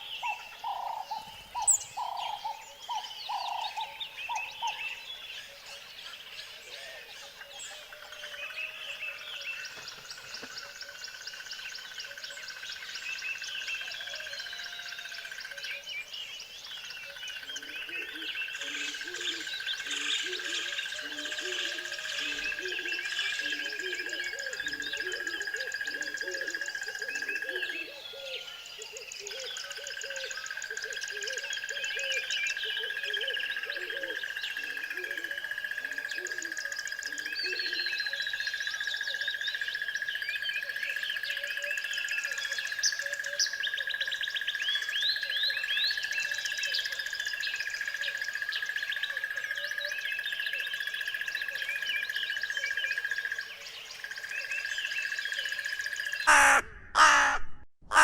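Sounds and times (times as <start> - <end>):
birds chirping: 51.0 - 58.0
low hooting calls: 56.3 - 58.0.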